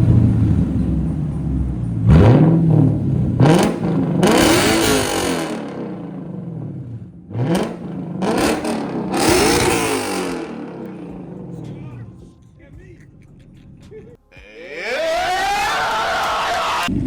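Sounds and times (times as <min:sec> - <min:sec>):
car engine revving: 0:00.0 - 0:14.2.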